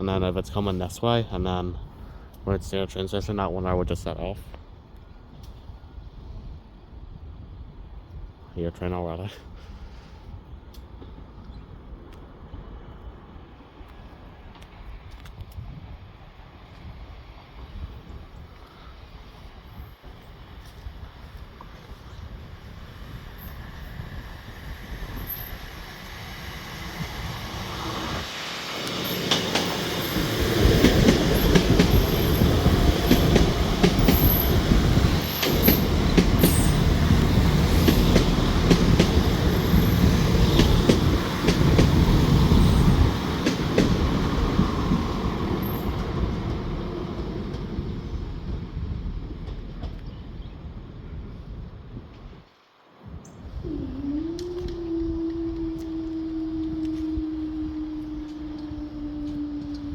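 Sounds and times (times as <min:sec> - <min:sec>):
diesel train passing: 0:19.0 - 0:52.4, 0:55.2 - 0:59.9
wheels clicking over rail joints: 0:28.8 - 0:50.5.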